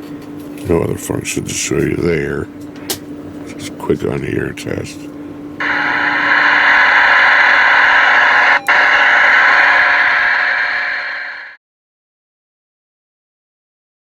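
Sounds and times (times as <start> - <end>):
radio static hissing: 5.6 - 11.6.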